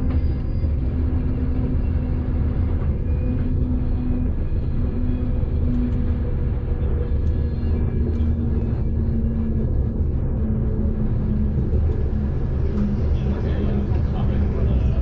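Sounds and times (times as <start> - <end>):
pulsing hum: 0.0 - 15.0
train rumble inside carriage: 0.0 - 15.0.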